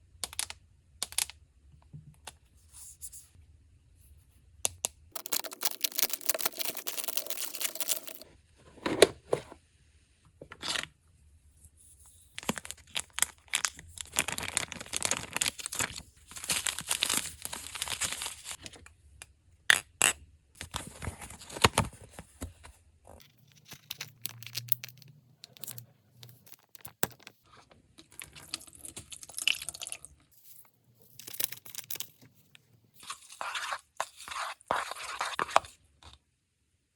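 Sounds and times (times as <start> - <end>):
plastic parts clicking: 5.1 - 8.2, 23.2 - 27.4, 31.0 - 32.2
plastic wrappers tearing: 5.1 - 8.2, 23.3 - 27.3, 30.5 - 32.2.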